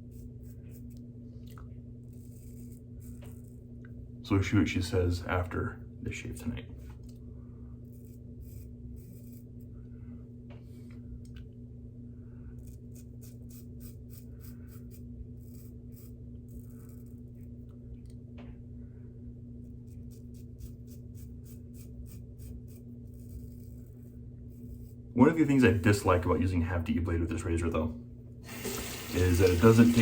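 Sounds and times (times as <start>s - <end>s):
steady low hum: 0.0s - 30.0s
razor scraping stubble: 2.1s - 3.8s, 7.8s - 9.7s, 12.6s - 17.5s, 19.7s - 26.4s.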